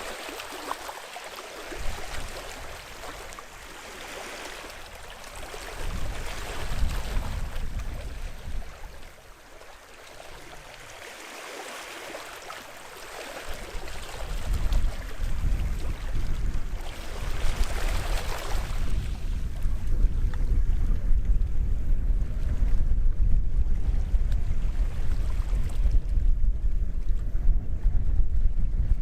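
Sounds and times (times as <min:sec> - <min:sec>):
small waves washing onto shore: 0:00.0 - 0:21.4.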